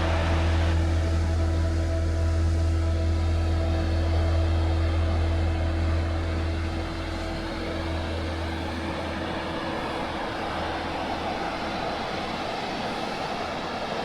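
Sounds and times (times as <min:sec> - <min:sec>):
road noise: 0:00.0 - 0:01.7
wind noise: 0:00.0 - 0:14.0.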